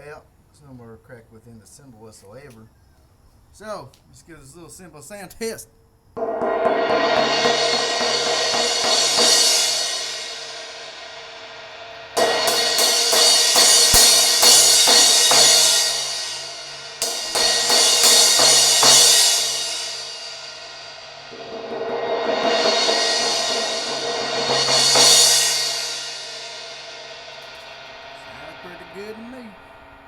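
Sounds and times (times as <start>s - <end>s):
crash cymbal struck and ringing: 6.2s - 30.0s.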